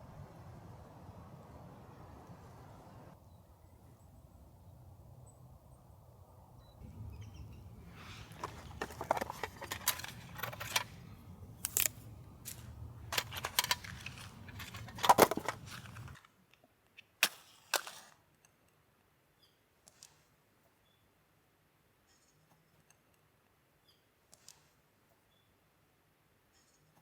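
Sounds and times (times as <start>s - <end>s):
sharp cracks and snaps: 7.6s - 16.2s, 17.0s - 18.1s.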